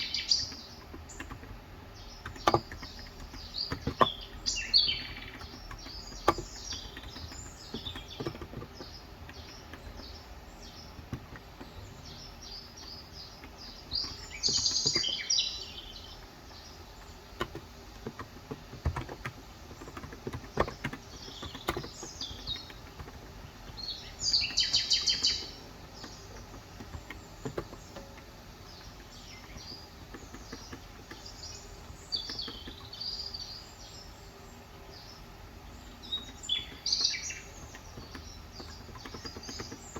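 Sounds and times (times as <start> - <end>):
birds chirping: 0.0 - 39.9
keyboard key clicks: 0.4 - 11.9, 16.9 - 33.0.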